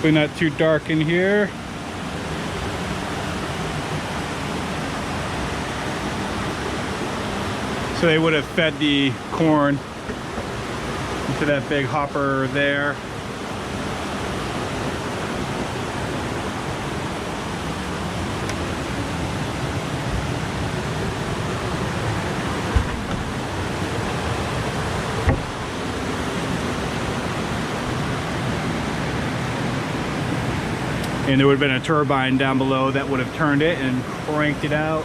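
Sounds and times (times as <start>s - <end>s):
mountain stream rushing: 0.0s - 35.0s
brief thumps: 22.6s - 23.6s, 25.2s - 25.6s.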